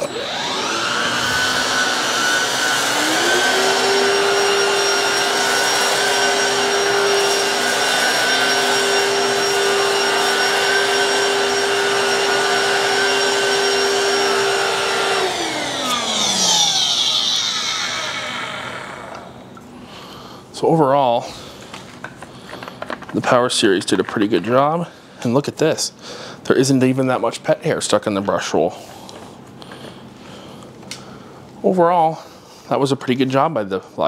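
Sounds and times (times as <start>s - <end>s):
stick vacuum motor whine: 0.0s - 19.6s.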